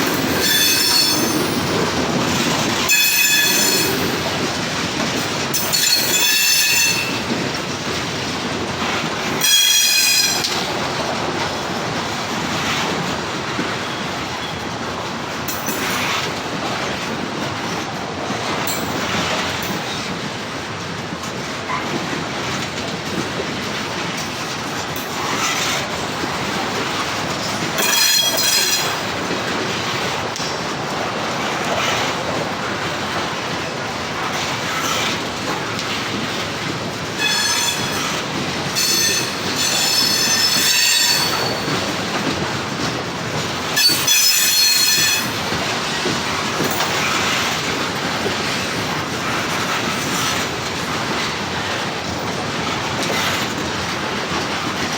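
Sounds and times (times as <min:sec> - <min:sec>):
train wheels rumbling on rails: 0:00.0 - 0:54.9
high-pitched wheel squeals: 0:00.4 - 0:01.7, 0:02.9 - 0:04.1, 0:37.2 - 0:38.2, 0:38.8 - 0:41.8, 0:43.8 - 0:45.3.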